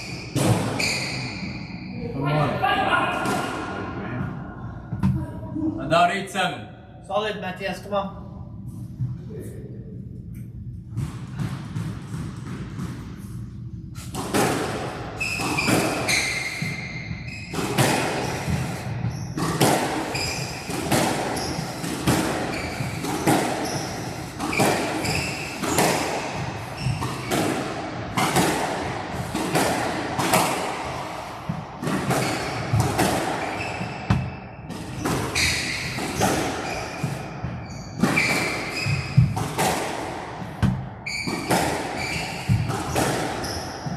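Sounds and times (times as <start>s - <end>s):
shoes squeaking on court: 0.0s - 1.9s, 15.2s - 17.8s, 18.6s - 20.7s, 22.5s - 26.1s, 32.1s - 39.6s, 40.7s - 43.9s.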